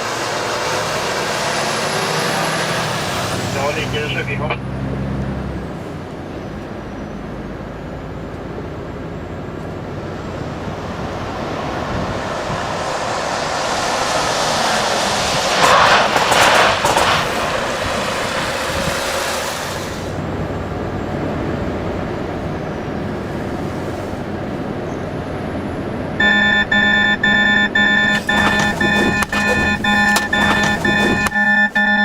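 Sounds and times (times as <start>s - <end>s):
truck road and wind noise: 0.0s - 32.0s
loud burst of noise: 11.0s - 20.2s, 26.2s - 32.0s.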